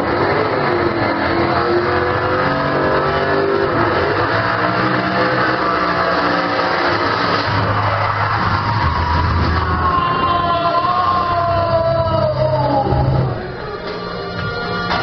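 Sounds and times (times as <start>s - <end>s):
car engine revving over loudspeakers: 0.0s - 10.0s.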